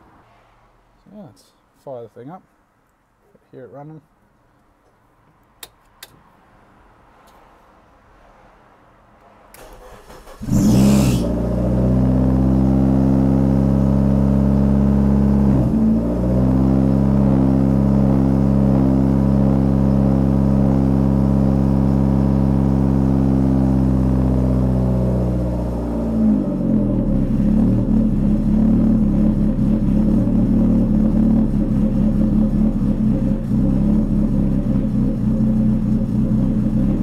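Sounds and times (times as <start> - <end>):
car engine starting and idling: 9.2 - 37.0.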